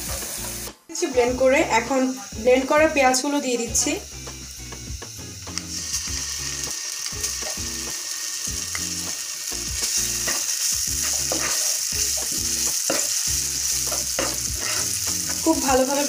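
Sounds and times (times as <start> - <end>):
onion paste sizzling in oil: 0.0 - 16.0
spatula scraping pan: 10.2 - 15.8.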